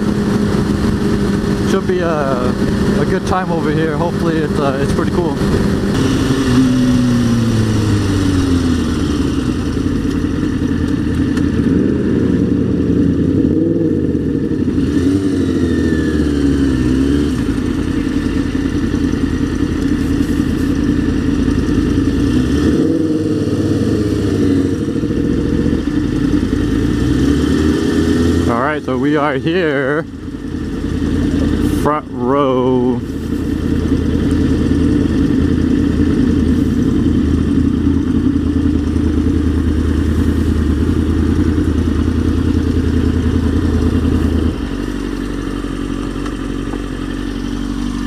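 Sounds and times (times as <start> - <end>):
steady rushing noise: 0.0 - 10.8
motorcycle engine revving: 0.0 - 48.0.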